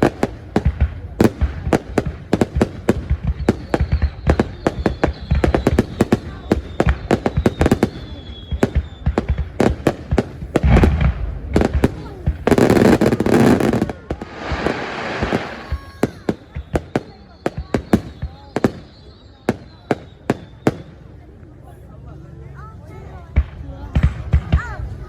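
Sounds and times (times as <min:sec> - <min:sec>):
fireworks bangs and cracks: 0:00.0 - 0:21.0, 0:23.2 - 0:25.0
faint high firework whistle: 0:03.0 - 0:09.9, 0:12.6 - 0:21.4.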